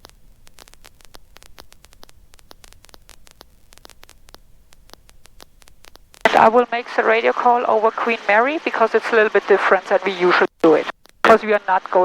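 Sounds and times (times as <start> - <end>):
intercom static clicks: 0.0 - 12.0
low steady hum: 4.2 - 12.0.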